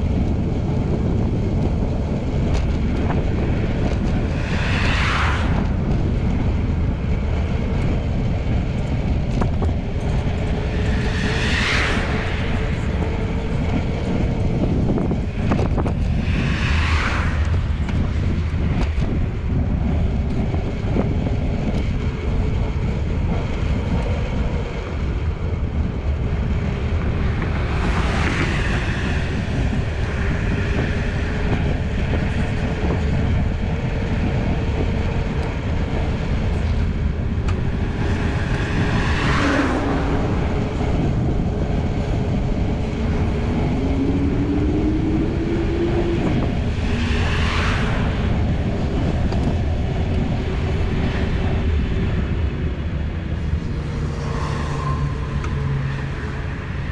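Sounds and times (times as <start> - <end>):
bicycle road noise: 0.0 - 56.9
wind on microphone: 0.0 - 56.9
motor vehicles passing: 0.1 - 56.9.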